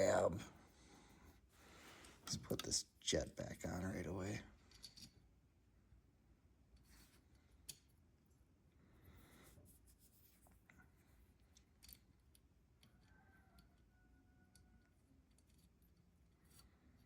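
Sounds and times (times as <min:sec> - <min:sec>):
small metal parts clicking: 0:04.7 - 0:05.2, 0:11.3 - 0:13.8, 0:14.5 - 0:17.0.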